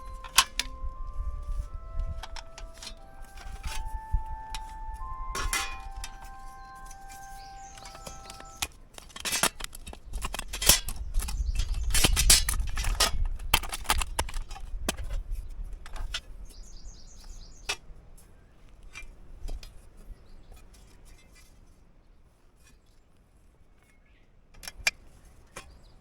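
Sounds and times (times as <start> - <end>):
bird chirping: 0.0 - 8.6.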